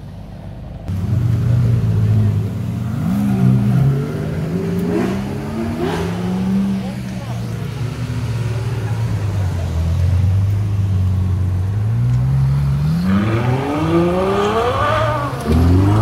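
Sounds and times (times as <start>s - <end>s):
car engine revving: 0.9s - 16.0s.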